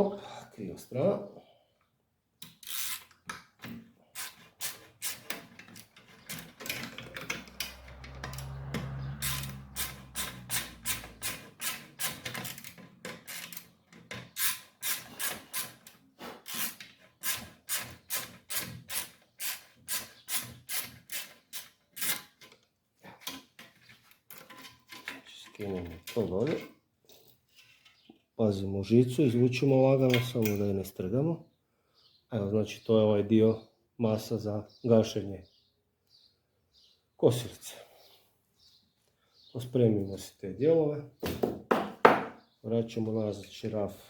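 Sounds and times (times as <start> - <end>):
ratchet wrench clicking: 2.4 - 3.2, 9.2 - 13.7.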